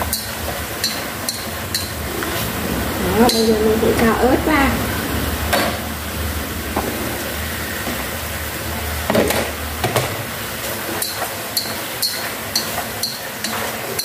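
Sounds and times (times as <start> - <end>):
low steady hum: 0.0 - 11.0
stir-fry sizzling in a pot: 0.0 - 14.0
knocks and clinks against pot: 11.0 - 14.0.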